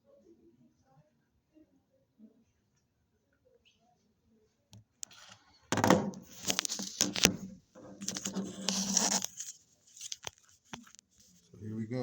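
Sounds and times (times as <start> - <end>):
rustling and handling noise: 5.1 - 11.6.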